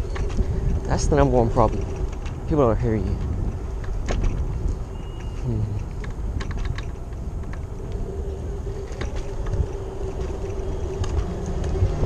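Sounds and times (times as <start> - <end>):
light rattling clicks: 0.0 - 8.0, 8.8 - 12.0
wheels rumbling on pavement: 0.0 - 12.0
wind on microphone: 0.0 - 12.0
electric scooter motor hum: 3.2 - 12.0.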